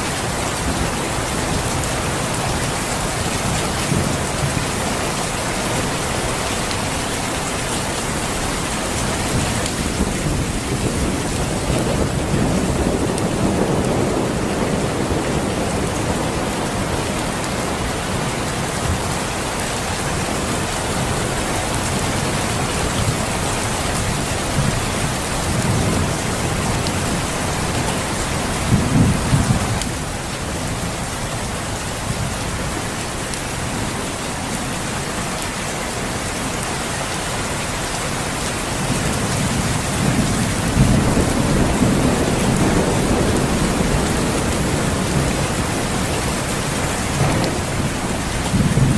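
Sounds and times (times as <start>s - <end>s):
heavy rain: 0.0s - 48.9s
thunder rolling: 9.1s - 17.6s, 39.2s - 48.9s.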